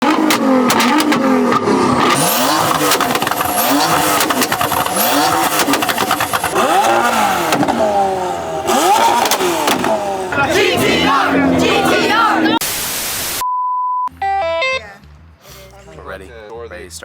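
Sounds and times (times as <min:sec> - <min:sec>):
exhaust crackling pops: 0:00.0 - 0:10.5
car engines revving: 0:00.0 - 0:12.6.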